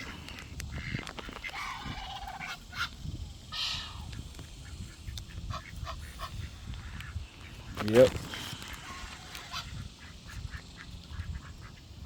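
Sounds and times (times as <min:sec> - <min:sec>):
waterfowl honking: 0:00.7 - 0:12.0.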